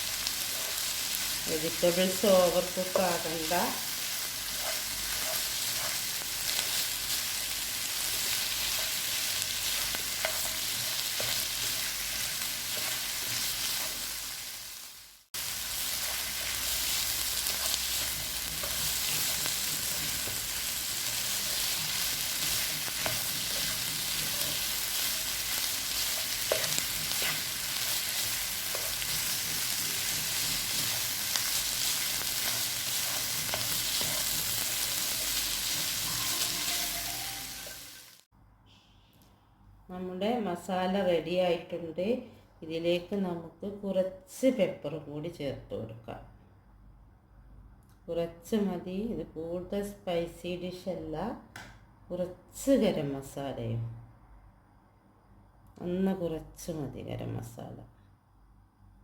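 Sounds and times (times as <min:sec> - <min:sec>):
food sizzling in a frying pan: 0:00.0 - 0:38.3.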